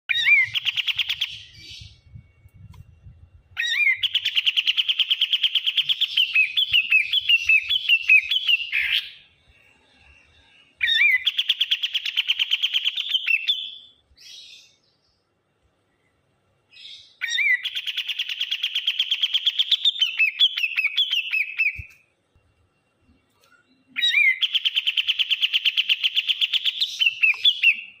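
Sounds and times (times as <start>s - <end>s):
songbird singing chattering notes: 0.1s - 9.3s, 10.8s - 13.8s, 16.8s - 22.0s, 23.1s - 28.0s.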